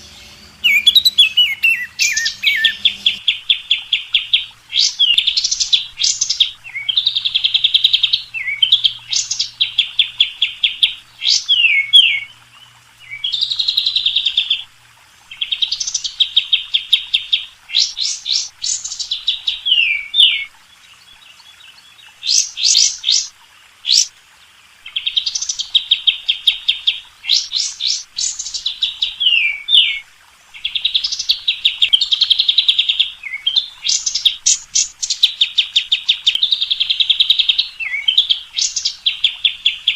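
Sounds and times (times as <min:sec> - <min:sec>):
songbird trills and whistles: 0:00.0 - 0:03.2.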